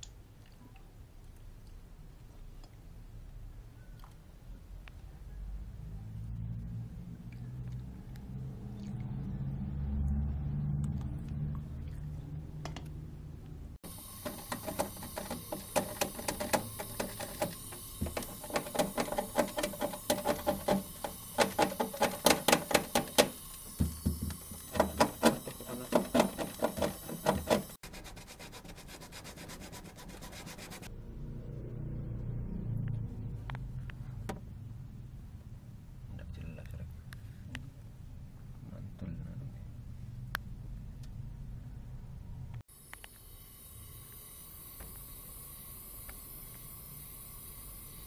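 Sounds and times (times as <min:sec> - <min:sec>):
hand sanding strokes: 0:24.7 - 0:30.9
low hum: 0:30.9 - 0:36.0.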